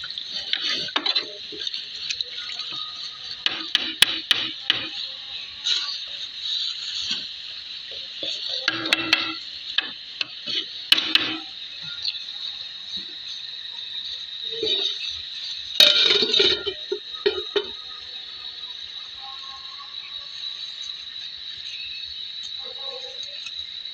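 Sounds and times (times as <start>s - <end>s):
steady high hiss: 0.0s - 23.9s
dishes and utensils clinking: 0.4s - 5.0s, 8.2s - 11.5s, 14.5s - 15.0s, 15.8s - 17.8s.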